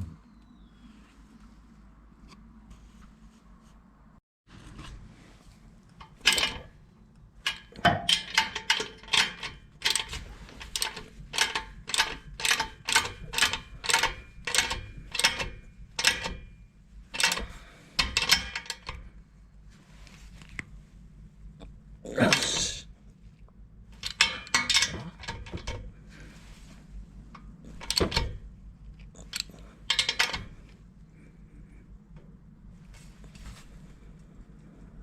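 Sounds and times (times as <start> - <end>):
ratchet wrench ratcheting: 7.4 - 16.4, 17.2 - 19.0, 27.7 - 28.2, 29.2 - 30.6.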